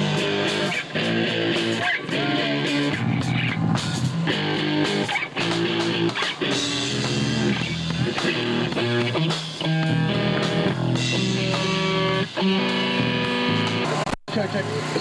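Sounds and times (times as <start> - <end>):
bass guitar: 0.0 - 15.0
distorted electric guitar chords: 0.0 - 15.0
drums: 0.0 - 15.0.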